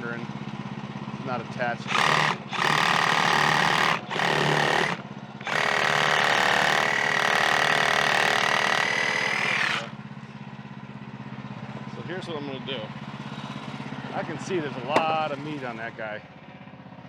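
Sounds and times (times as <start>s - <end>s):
bandsaw mill cutting log: 1.9s - 10.0s, 14.9s - 15.4s.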